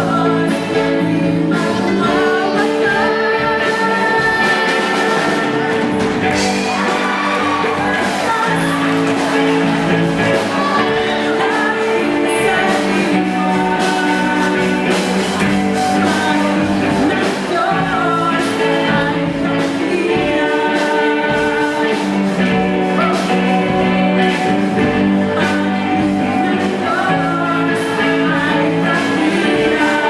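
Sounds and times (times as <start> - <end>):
live rock music: 0.0 - 30.0
person singing: 0.0 - 30.0
drum hits: 5.1 - 14.0.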